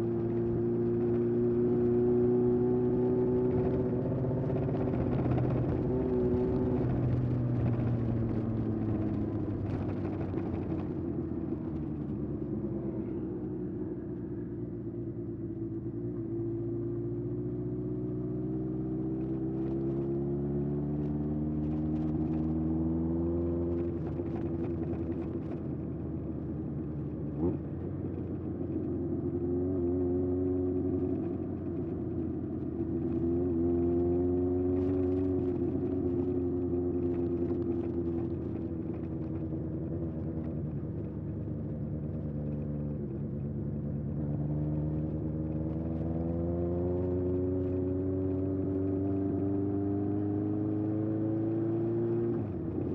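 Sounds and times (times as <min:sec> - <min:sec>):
motorcycle engine accelerating: 0:15.0 - 0:52.9.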